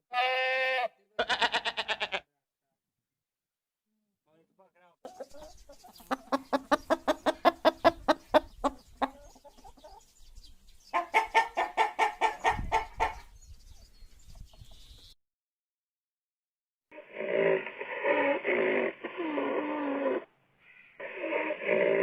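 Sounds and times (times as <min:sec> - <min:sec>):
chicken clucking and cackling: 0:05.1 - 0:10.3, 0:10.9 - 0:13.3.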